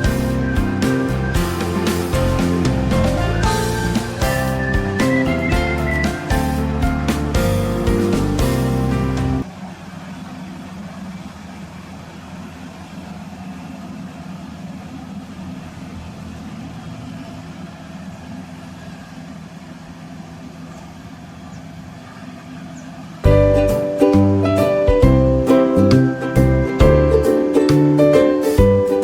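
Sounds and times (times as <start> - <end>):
music: 0.0 - 9.4, 23.3 - 29.0
harvester engine drone: 0.0 - 28.6.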